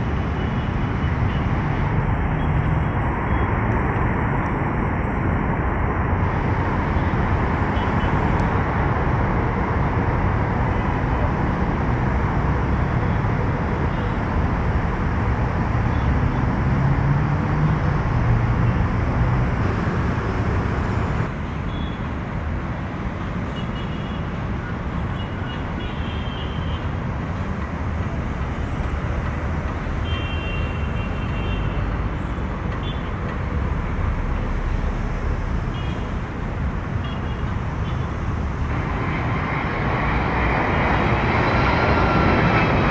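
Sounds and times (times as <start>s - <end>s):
engine rumble: 6.0s - 21.3s.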